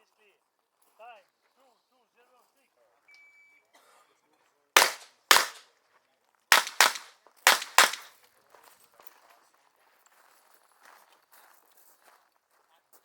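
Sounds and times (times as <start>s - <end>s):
revolver shots: 4.8s - 5.6s.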